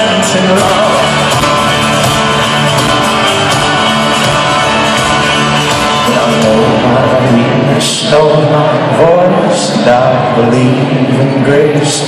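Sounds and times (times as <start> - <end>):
live folk-rock band playing: 0.0 - 12.0
person singing: 0.0 - 12.0
strummed acoustic guitar: 0.0 - 12.0.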